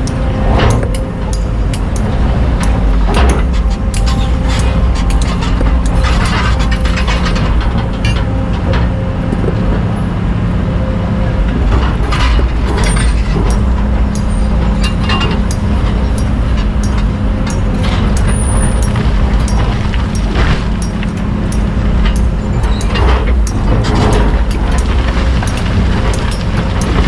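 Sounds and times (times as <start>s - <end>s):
bucket clanking and scraping rock: 0.0s - 10.1s, 11.4s - 27.0s
excavator diesel engine running: 0.0s - 27.0s.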